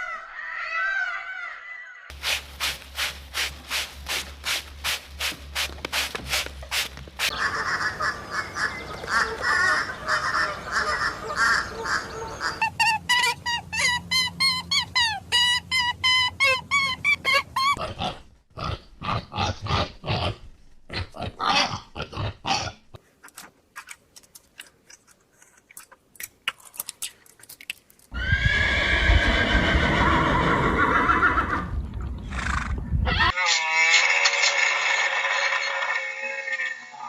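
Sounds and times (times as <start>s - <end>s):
ducks calling: 6.8s - 15.3s
dense poultry chatter: 7.3s - 12.7s.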